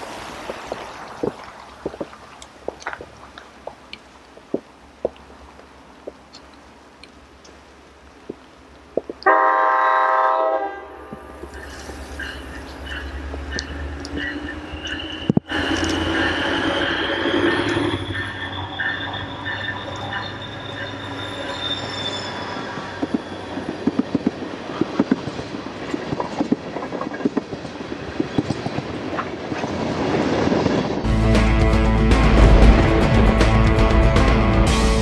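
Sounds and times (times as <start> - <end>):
freight train rolling past: 9.2 - 35.0
high wheel squeal: 11.5 - 24.6
wheels clanking over rail joints: 21.9 - 30.9.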